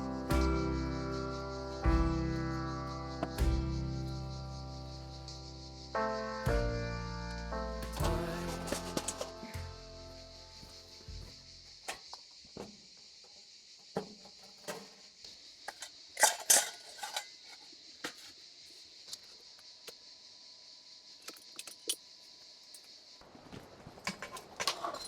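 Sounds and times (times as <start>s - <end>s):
cutlery and dishes clinking: 15.7s - 17.4s.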